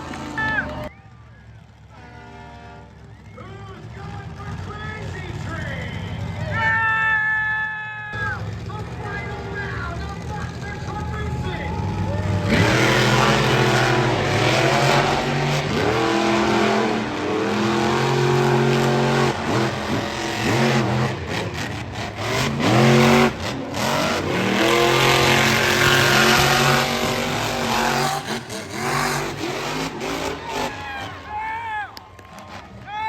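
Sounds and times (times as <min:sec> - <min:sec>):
monster truck engines revving: 0:00.0 - 0:33.0.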